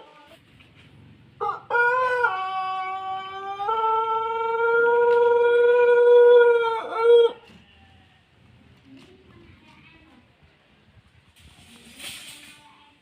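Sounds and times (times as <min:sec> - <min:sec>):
rooster crowing: 0:01.4 - 0:08.0.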